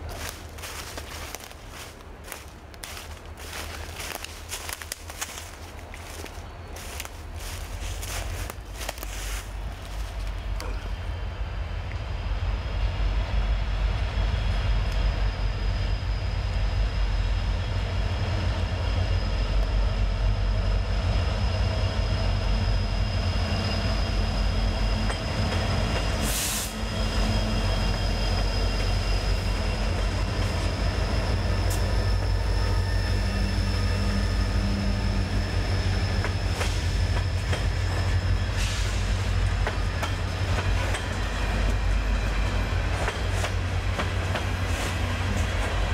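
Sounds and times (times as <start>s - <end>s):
freight train cars rumbling: 0.0s - 45.9s
high-pitched wheel squeal: 22.2s - 40.1s.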